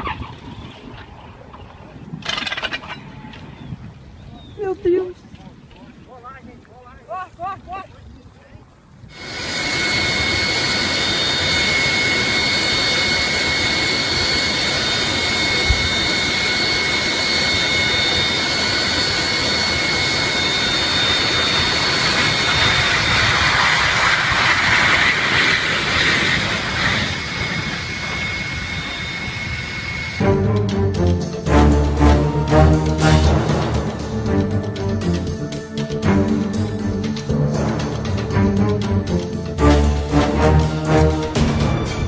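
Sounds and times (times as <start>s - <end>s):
jet engine roaring and whining: 9.1s - 42.0s.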